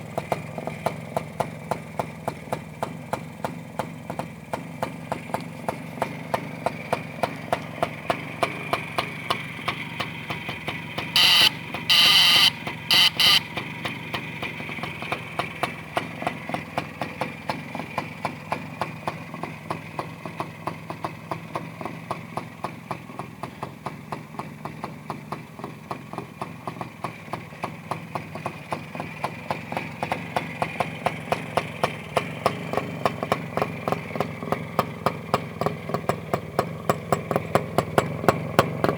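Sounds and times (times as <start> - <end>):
motorcycle engine idling: 0.0 - 38.9
high-pitched blasts: 11.2 - 13.5.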